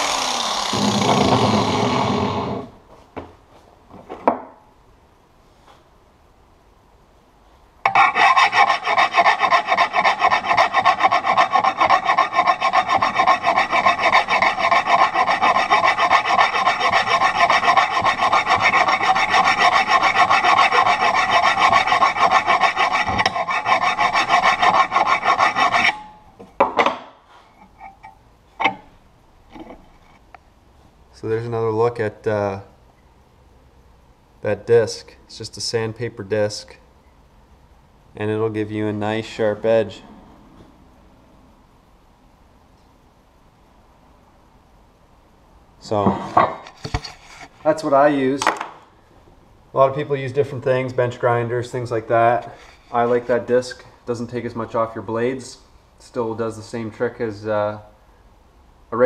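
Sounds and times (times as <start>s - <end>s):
blade grinding on sandpaper disc: 7.9s - 26.1s.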